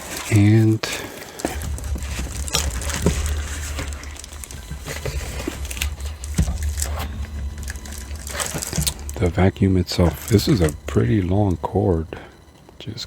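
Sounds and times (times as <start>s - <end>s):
plastic packaging crinkling: 0.0s - 12.9s
background traffic rumble: 0.0s - 13.0s.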